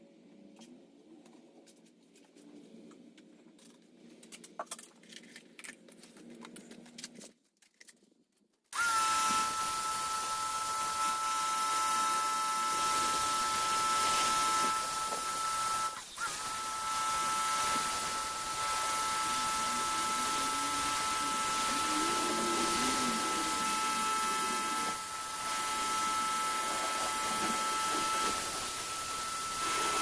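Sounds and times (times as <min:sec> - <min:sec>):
handling noises and clicks: 0:00.6 - 0:08.7.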